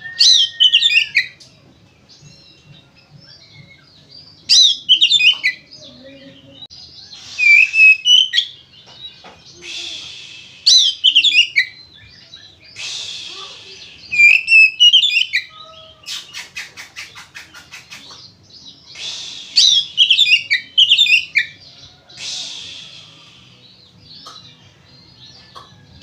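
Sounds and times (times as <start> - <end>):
bird whistling song: 0.0 - 1.5, 2.2 - 5.7, 7.0 - 24.5
bird harsh hissing rasps: 7.0 - 8.8, 9.4 - 11.8, 12.6 - 24.6.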